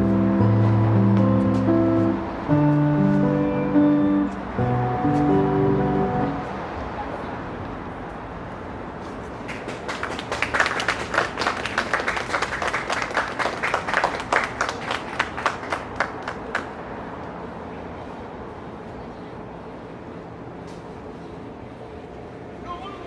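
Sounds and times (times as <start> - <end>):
people clapping: 9.3 - 16.8.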